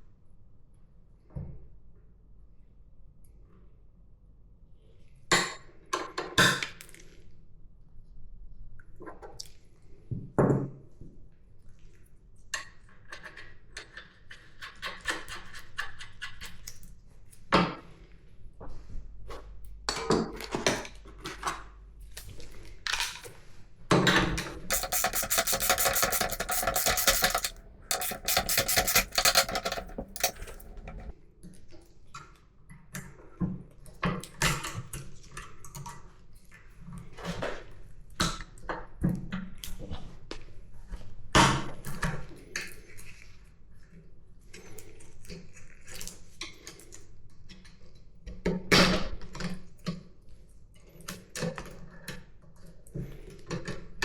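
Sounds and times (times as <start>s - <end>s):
rapid even clicking: 24.7s - 31.1s.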